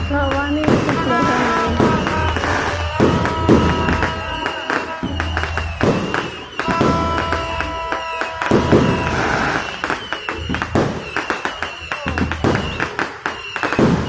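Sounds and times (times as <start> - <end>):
crowd voices: 0.0 - 14.0
fireworks bangs and pops: 0.0 - 14.0.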